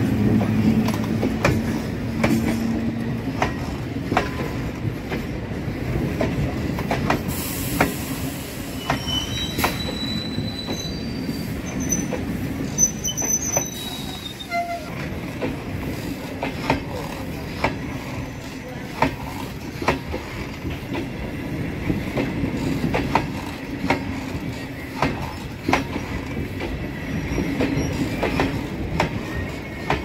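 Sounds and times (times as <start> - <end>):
wheels clacking over rail joints: 0.0 - 8.0, 11.8 - 30.0
train coaches rumbling past: 0.0 - 30.0
high wheel squeals: 8.6 - 15.0.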